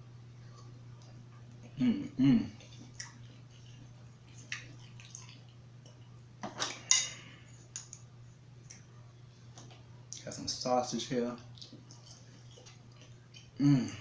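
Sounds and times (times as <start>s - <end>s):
eating clicks and crackles: 2.6s - 6.1s.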